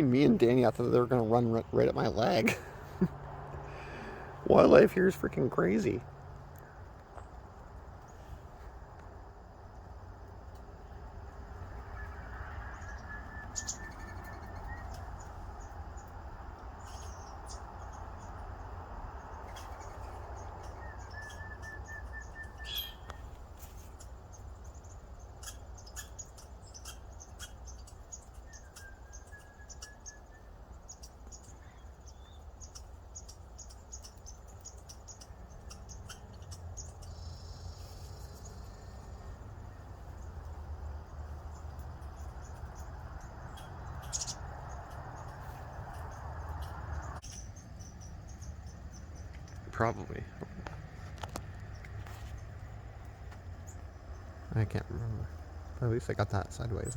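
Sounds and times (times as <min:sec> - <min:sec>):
bird trills: 0:11.8 - 0:16.2, 0:16.8 - 0:18.4, 0:19.1 - 0:40.5, 0:41.3 - 0:50.2
high bird chips: 0:19.4 - 0:40.5, 0:41.3 - 0:50.2.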